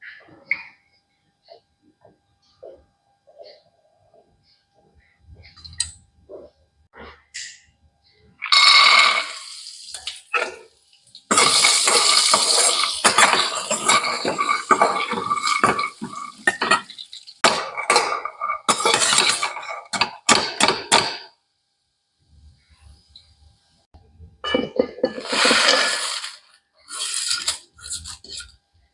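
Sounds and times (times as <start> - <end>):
spoon scraping metal pan: 11.3 - 20.7, 24.6 - 28.6.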